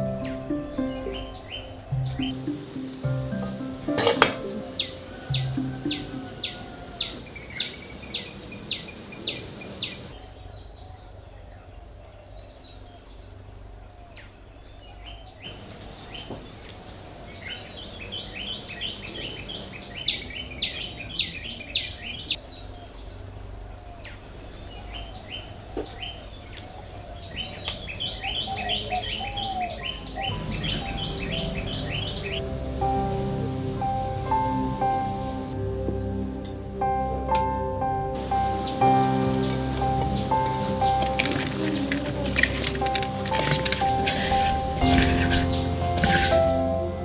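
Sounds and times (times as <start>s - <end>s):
birds chirping: 0.0s - 35.6s, 36.8s - 47.0s.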